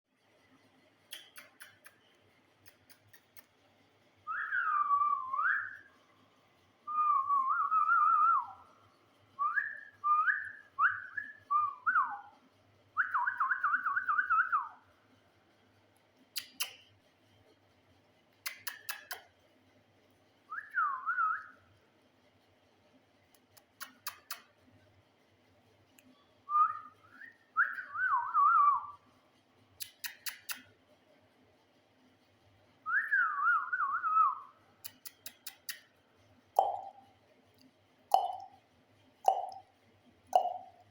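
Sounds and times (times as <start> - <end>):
parrot clicks: 1.1 - 2.0, 2.6 - 3.5, 18.5 - 19.2, 23.4 - 24.5, 29.8 - 30.7, 34.8 - 35.9
parrot whistling: 36.6 - 37.0, 38.1 - 38.5, 40.4 - 40.8.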